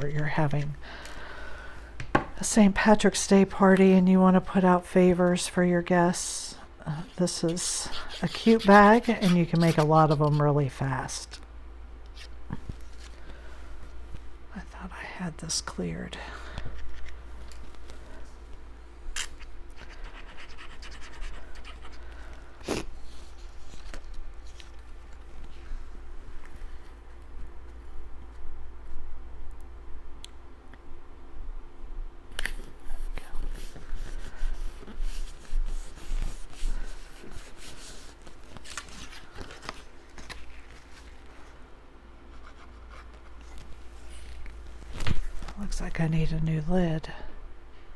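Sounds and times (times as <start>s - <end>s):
hands rustling craft materials: 7.0s - 11.4s, 32.4s - 41.6s.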